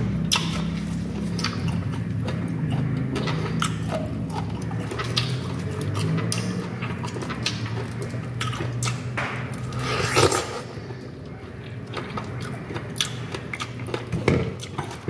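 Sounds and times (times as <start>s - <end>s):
chewing juicy fruit: 0.0s - 15.0s
steady low hum: 8.0s - 14.0s.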